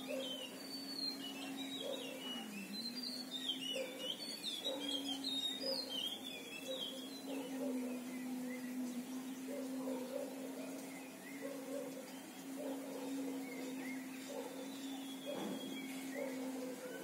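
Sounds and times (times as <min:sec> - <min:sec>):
songbird warbling: 0:00.0 - 0:17.0.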